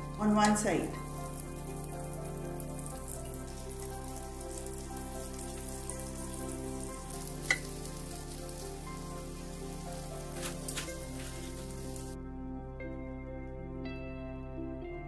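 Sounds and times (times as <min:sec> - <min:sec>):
background music of held chords: 0:00.0 - 0:15.0
tofu sizzling in oil: 0:00.8 - 0:12.2.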